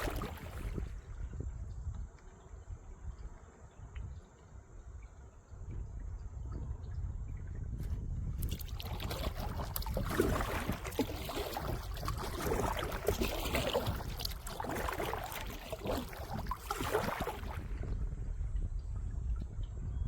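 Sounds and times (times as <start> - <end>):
paddle splashing and dripping water: 0.0 - 20.0
wind rumble on microphone: 0.0 - 20.0.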